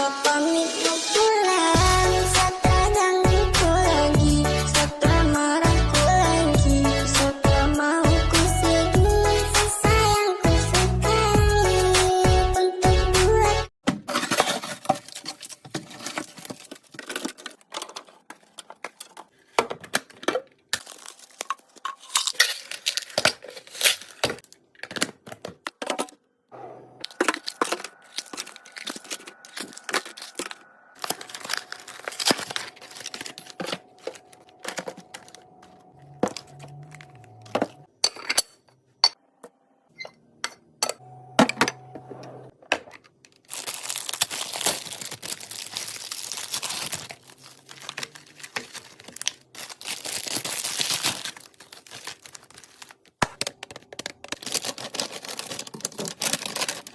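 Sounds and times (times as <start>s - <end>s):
snack packaging crinkling: 14.1s - 25.7s, 27.0s - 37.8s, 42.9s - 56.9s
plastic containers set down: 33.3s - 37.8s.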